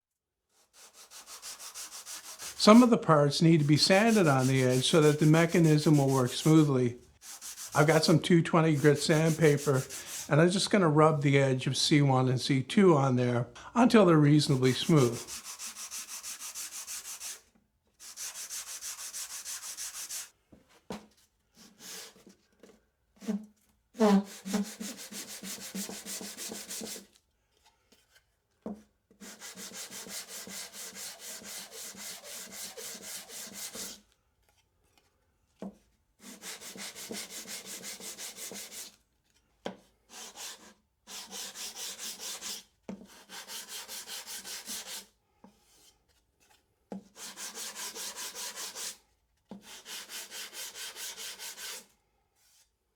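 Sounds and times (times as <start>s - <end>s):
wood rubbed on sandpaper: 0.6s - 10.5s, 14.4s - 17.4s, 18.0s - 20.3s, 24.0s - 27.1s, 29.2s - 34.0s, 36.2s - 39.0s, 40.1s - 45.1s, 47.2s - 49.0s, 49.6s - 51.9s.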